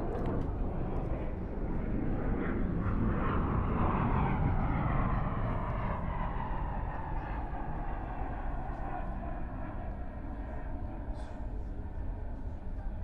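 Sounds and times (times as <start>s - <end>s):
distant jet aircraft passing: 0.0s - 13.0s.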